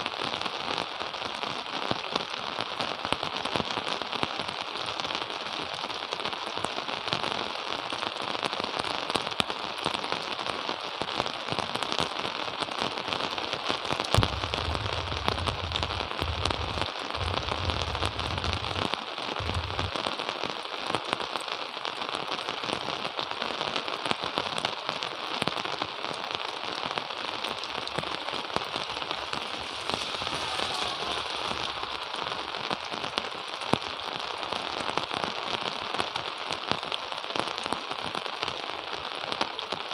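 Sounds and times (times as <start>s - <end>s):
steady rain falling: 0.0s - 39.9s
low rumble: 14.2s - 18.8s, 19.4s - 19.9s.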